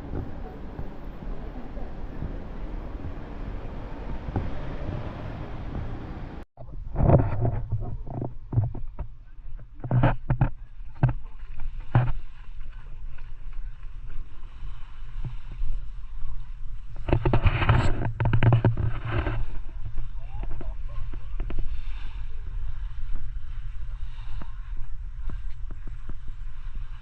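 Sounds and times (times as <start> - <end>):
low engine rumble: 0.0 - 7.0
rushing wind-like noise: 0.0 - 7.9.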